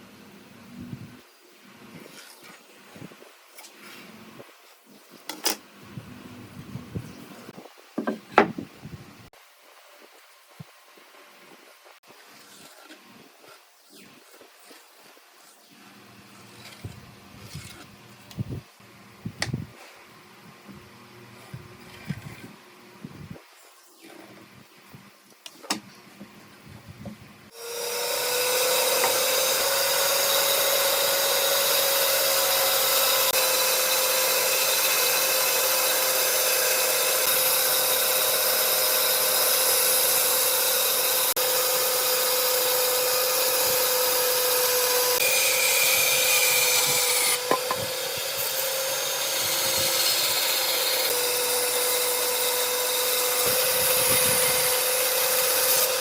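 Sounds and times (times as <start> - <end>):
power tool cutting wood: 27.5 - 56.0.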